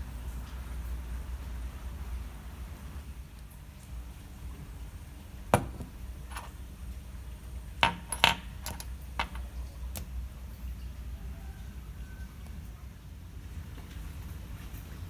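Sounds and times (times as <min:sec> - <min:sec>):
small hard objects clinking: 0:07.8 - 0:09.5.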